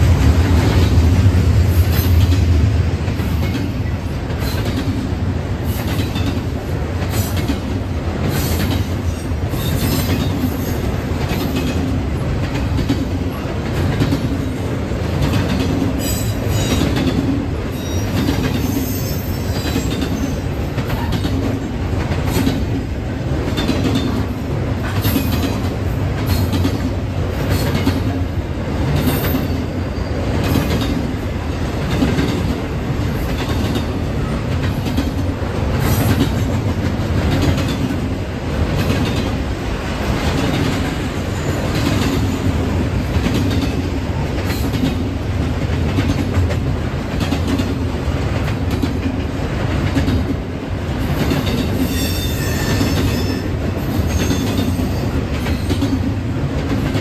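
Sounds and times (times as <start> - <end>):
train rumbling on rails: 0.0 - 57.0
high wheel squeal: 17.8 - 20.4, 51.8 - 53.5
wheels clicking over rail joints: 19.5 - 28.2, 41.6 - 51.9.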